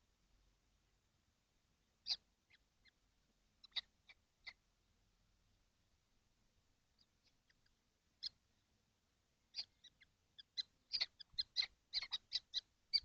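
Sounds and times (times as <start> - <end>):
kestrels calling: 2.0 - 3.0, 3.6 - 4.7, 6.9 - 8.6, 9.5 - 13.0.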